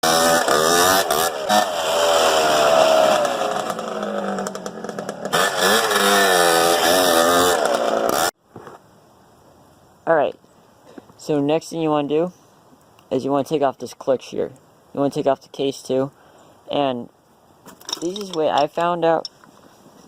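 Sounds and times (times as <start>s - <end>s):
dirt bike engine revving: 0.0s - 8.3s.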